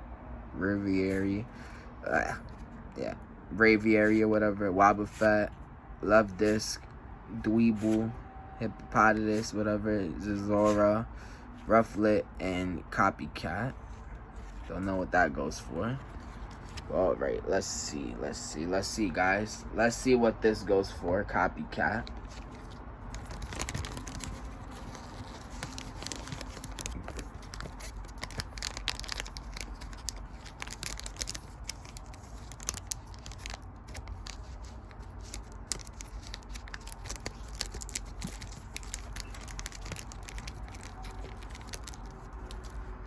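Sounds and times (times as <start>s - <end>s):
card packaging crinkling: 15.9s - 17.0s, 22.0s - 43.0s.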